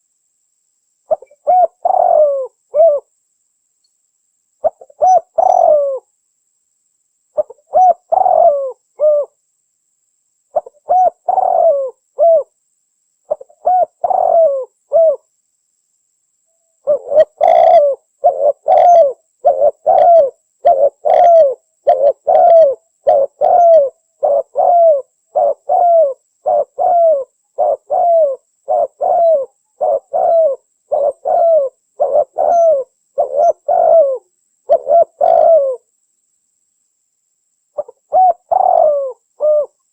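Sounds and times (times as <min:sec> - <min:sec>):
dove cooing: 0:01.1 - 0:03.1, 0:04.6 - 0:06.1, 0:07.4 - 0:09.4, 0:10.5 - 0:12.5, 0:13.3 - 0:15.2, 0:16.8 - 0:35.9, 0:37.8 - 0:39.8.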